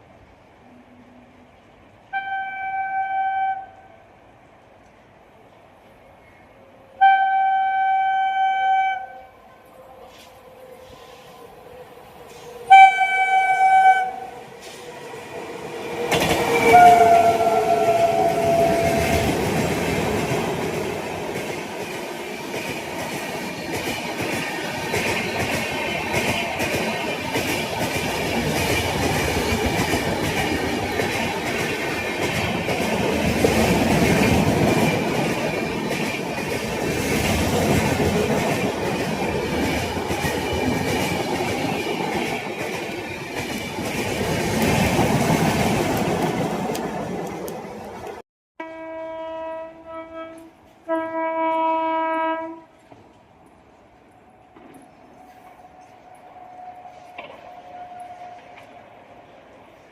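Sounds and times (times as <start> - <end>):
train horn blast: 2.1 - 4.0, 6.9 - 9.4, 12.3 - 14.5, 16.4 - 19.4, 48.6 - 52.8, 56.4 - 58.7
train wheels rumbling and clattering: 14.2 - 48.2, 52.7 - 59.9.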